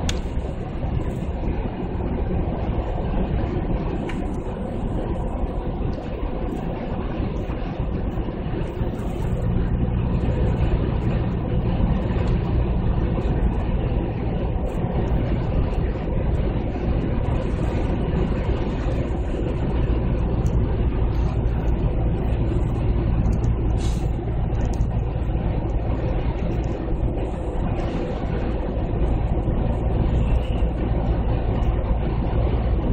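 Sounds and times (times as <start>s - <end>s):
deep engine exhaust note: 8.3s - 32.9s.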